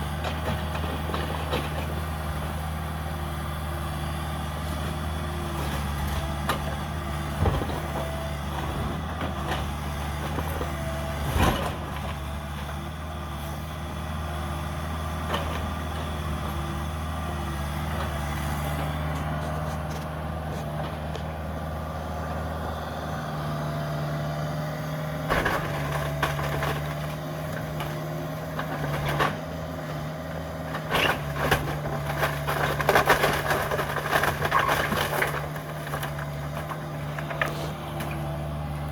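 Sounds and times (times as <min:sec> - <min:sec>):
excavator diesel engine running: 0:00.0 - 0:38.9
debris crunching and clattering: 0:25.3 - 0:28.0, 0:30.8 - 0:38.2.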